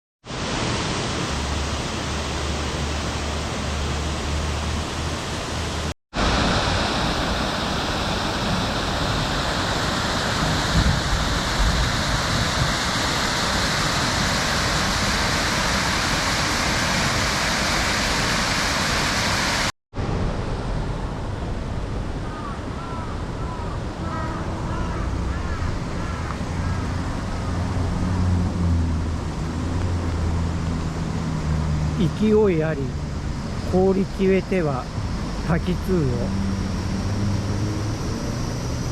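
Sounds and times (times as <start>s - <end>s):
waterfall rushing: 0.3s - 38.4s.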